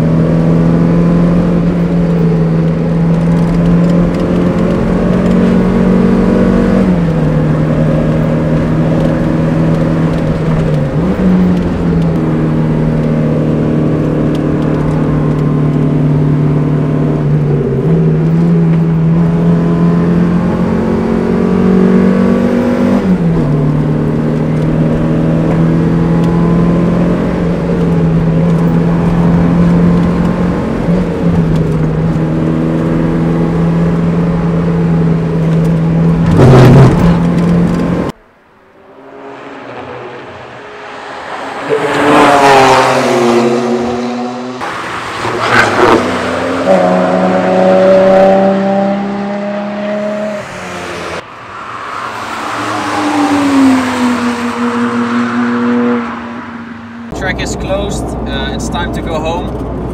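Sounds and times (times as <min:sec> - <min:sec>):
car engine from inside cabin: 0:00.0 - 0:44.8, 0:45.5 - 0:59.9
race cars passing by: 0:00.0 - 0:59.9.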